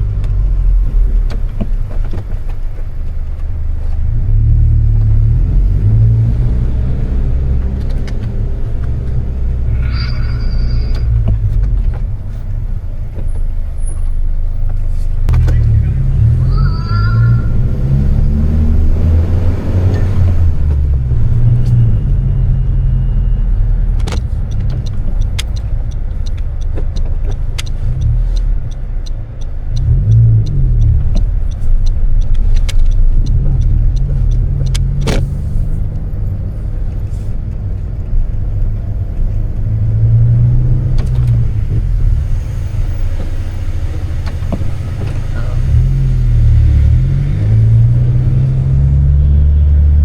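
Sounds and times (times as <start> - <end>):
car engine driving: 0.0 - 50.0
regular ticking: 15.2 - 49.0
sharp clicks: 23.8 - 36.1.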